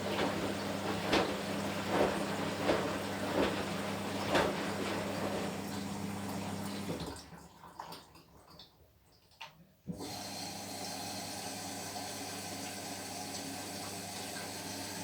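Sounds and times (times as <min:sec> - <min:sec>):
washing machine motor hum: 0:00.0 - 0:07.4, 0:09.9 - 0:15.0.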